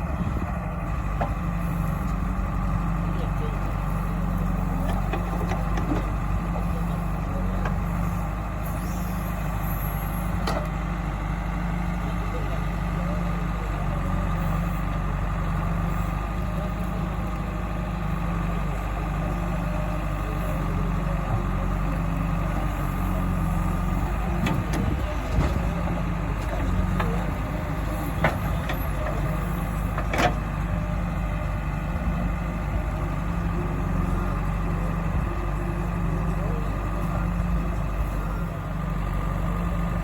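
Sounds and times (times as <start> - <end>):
heavy diesel engine running: 0.0 - 40.0.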